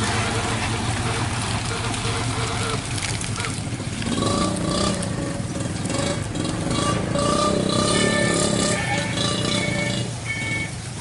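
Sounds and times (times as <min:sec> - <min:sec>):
truck diesel engines under load: 0:00.0 - 0:11.0.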